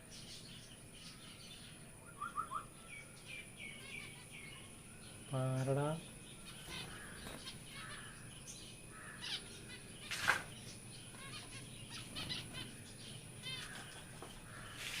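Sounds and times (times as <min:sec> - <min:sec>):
cage birds chirping: 0:00.0 - 0:15.0.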